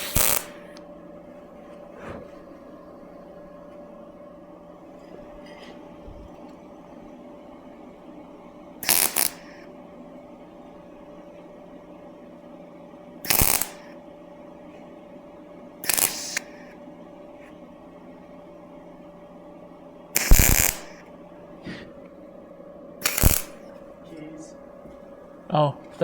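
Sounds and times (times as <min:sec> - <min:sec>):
crackling welding bursts: 0:00.0 - 0:00.8, 0:08.8 - 0:09.6, 0:13.3 - 0:13.9, 0:15.8 - 0:16.7, 0:20.2 - 0:21.0, 0:23.0 - 0:23.7
steady hum: 0:00.0 - 0:26.0.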